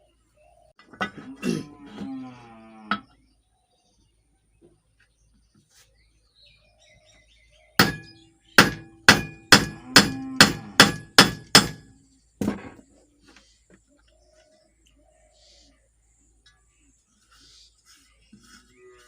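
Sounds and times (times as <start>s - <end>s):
hammer blows on metal: 7.8s - 11.9s.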